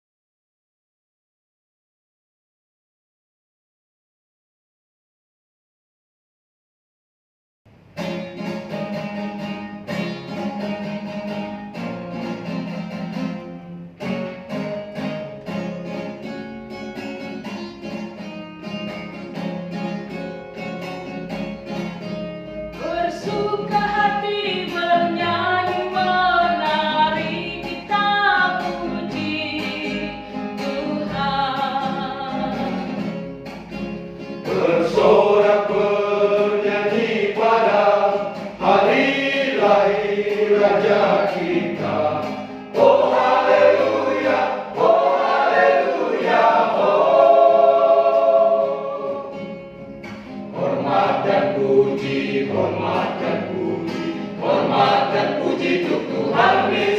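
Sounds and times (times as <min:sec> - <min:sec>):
plucked guitar-like accompaniment: 0:07.7 - 0:56.9
choir wordless singing: 0:34.4 - 0:49.7, 0:50.5 - 0:56.9.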